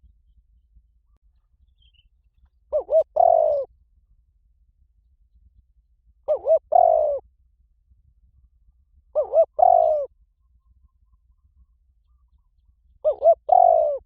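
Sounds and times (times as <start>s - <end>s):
dove cooing: 2.7s - 3.7s, 6.3s - 7.2s, 9.1s - 10.1s, 13.0s - 14.0s.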